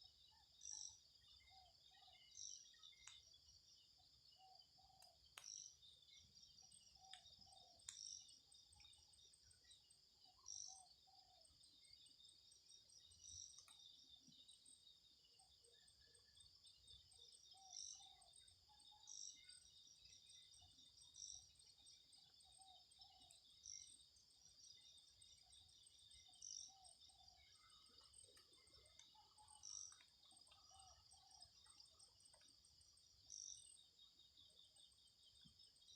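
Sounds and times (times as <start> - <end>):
insect chirring: 17.2 - 35.9.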